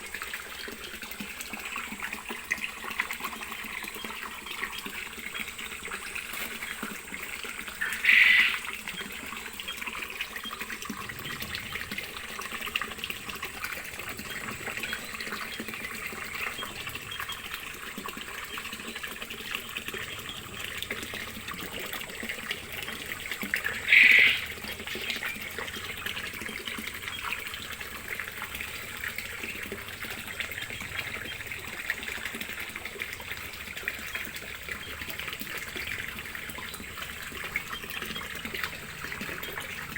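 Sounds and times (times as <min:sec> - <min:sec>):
water running and trickling: 0:00.0 - 0:39.9.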